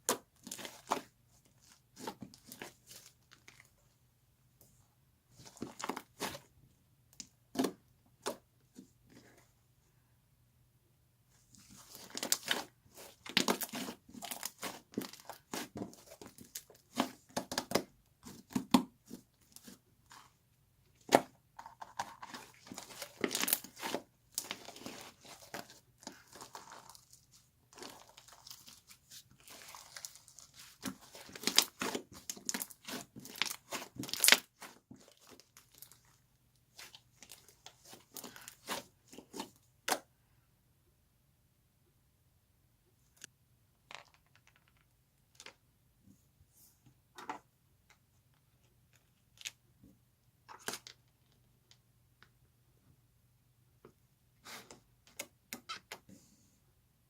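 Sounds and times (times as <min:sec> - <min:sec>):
material crinkling and crackling: 0:11.5 - 0:18.7, 0:21.6 - 0:39.6.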